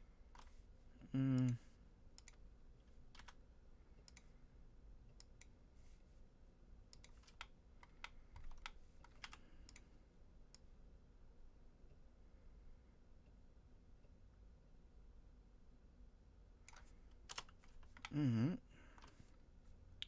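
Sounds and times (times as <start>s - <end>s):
computer keyboard tapping: 3.1s - 3.4s, 7.0s - 9.8s, 16.7s - 18.2s.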